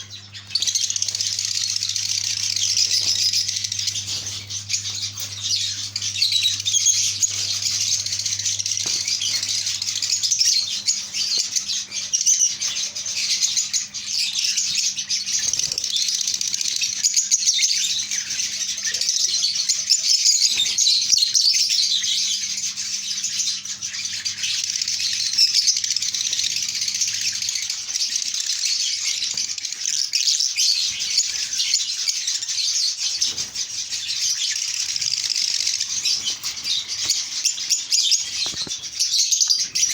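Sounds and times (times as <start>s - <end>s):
faint low hum: 0.0s - 16.8s
lovebirds chattering and chirping: 0.0s - 39.9s.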